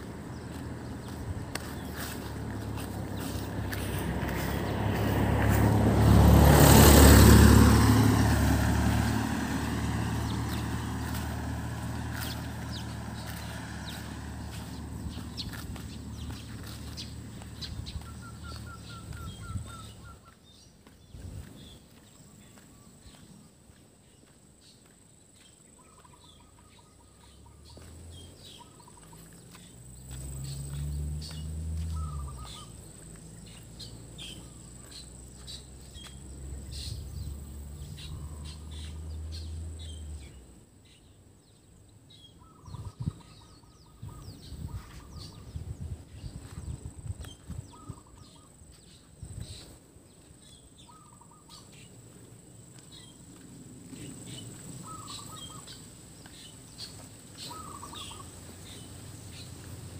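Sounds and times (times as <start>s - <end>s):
birds calling in pulsed trills: 12.1s - 23.5s, 25.4s - 59.9s.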